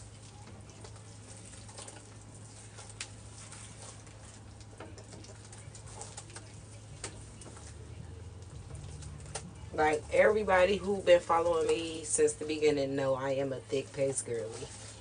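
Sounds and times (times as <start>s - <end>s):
soft crackles and clicks: 0.0s - 9.8s
hands squishing wet paste: 0.0s - 12.0s.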